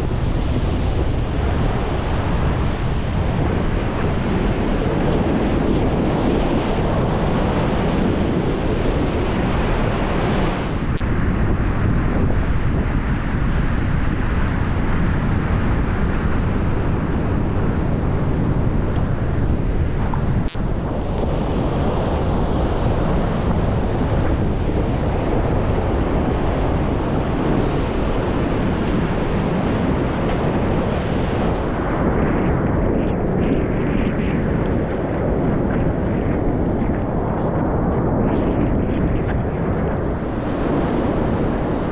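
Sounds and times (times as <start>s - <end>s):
wind buffeting microphone: 0.0s - 41.9s
breaking surf: 40.0s - 41.9s.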